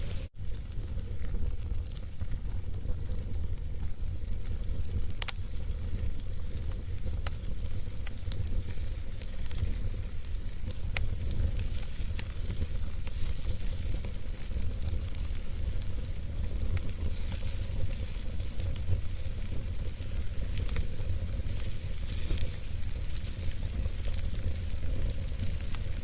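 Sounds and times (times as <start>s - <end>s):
fire crackling and popping: 0.0s - 26.0s
fire rumbling and hissing: 0.0s - 26.0s.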